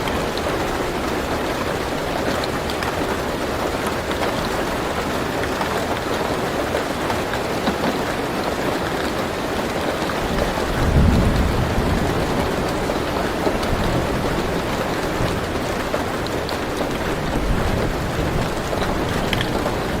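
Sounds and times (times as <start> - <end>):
rain drumming on car roof: 0.0 - 20.0
low rumble of thunder: 10.2 - 20.0.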